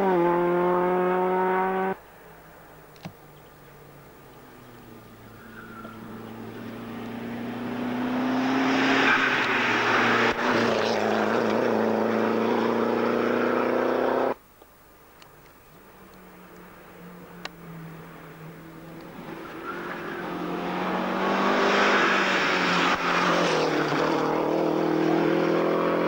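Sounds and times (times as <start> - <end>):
rally car engine passing: 0.0 - 2.0, 3.6 - 14.4, 16.4 - 26.0
distant car engine: 0.0 - 14.4, 15.7 - 26.0.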